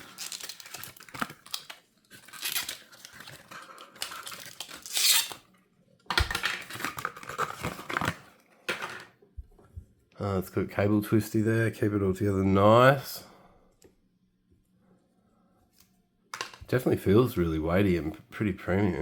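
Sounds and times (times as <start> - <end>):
packaging ripping and rustling: 0.0 - 5.5, 6.1 - 8.4.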